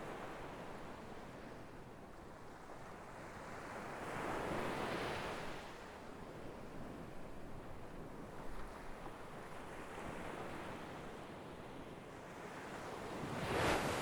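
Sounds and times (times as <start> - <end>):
sea waves breaking on shore: 12.9 - 14.0.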